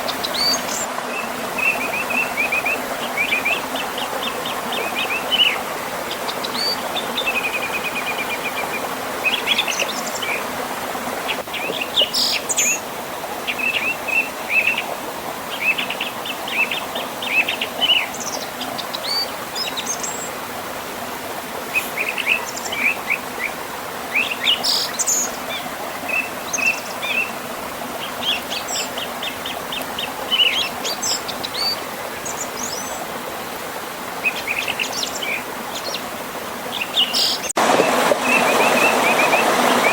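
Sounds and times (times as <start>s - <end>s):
songbirds chirping and trilling: 0.0s - 20.4s, 21.7s - 39.9s
river rushing past waterfall: 37.5s - 39.9s.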